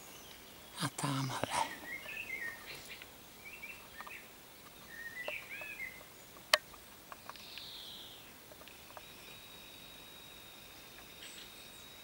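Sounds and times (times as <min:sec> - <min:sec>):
songbirds chirping: 0:00.0 - 0:12.0
faint ticks: 0:08.4 - 0:09.4.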